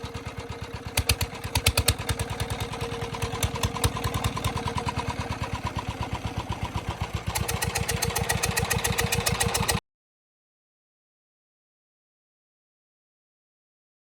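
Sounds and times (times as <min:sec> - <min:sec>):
diesel engine running: 0:00.0 - 0:09.8.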